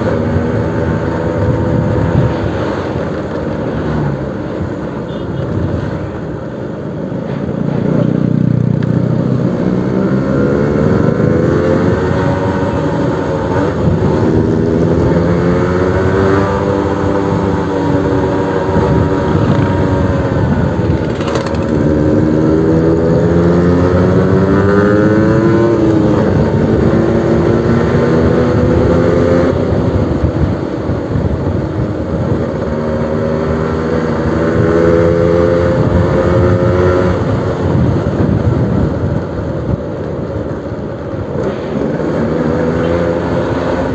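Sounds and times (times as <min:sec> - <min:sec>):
two-stroke motorcycle engine revving: 0:07.7 - 0:39.7, 0:41.2 - 0:43.9.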